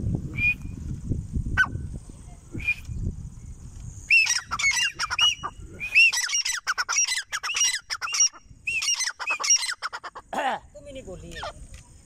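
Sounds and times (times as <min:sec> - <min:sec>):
francolin calling: 0:04.0 - 0:11.7.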